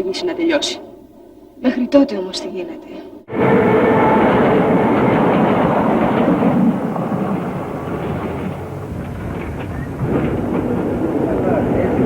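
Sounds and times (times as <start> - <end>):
electric train rumbling and rattling: 3.2 - 12.0.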